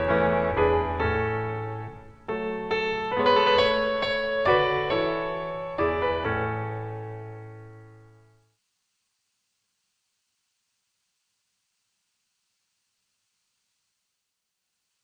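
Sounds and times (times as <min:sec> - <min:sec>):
piano chords: 0:00.0 - 0:08.4.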